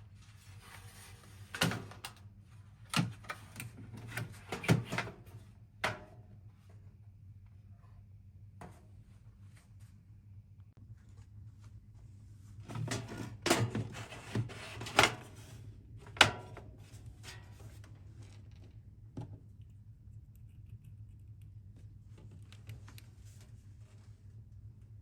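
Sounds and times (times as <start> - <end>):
steady low hum: 5.2 - 25.0.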